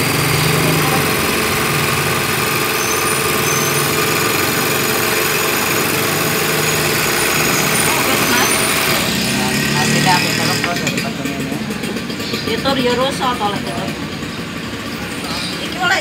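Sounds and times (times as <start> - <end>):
overlock sewing machine running: 0.0 - 16.0.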